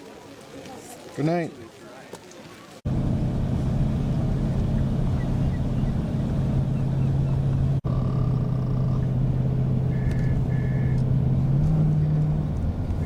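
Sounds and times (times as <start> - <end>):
vehicle engine hum: 2.9 - 13.0.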